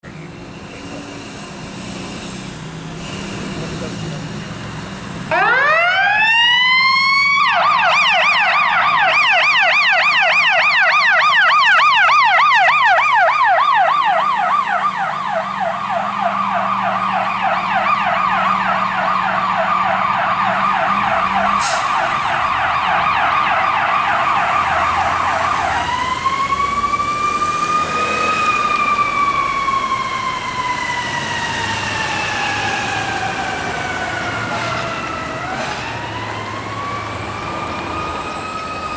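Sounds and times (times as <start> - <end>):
fire truck siren: 1.8 - 38.9
truck engine humming: 7.9 - 38.9.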